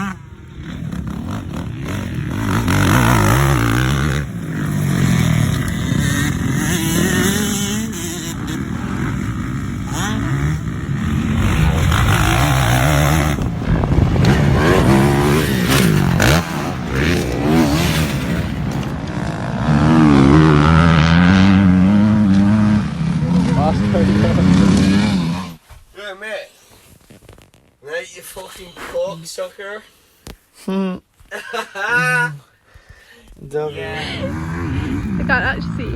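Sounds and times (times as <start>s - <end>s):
dirt bike engines revving: 0.0s - 25.6s, 33.5s - 35.9s.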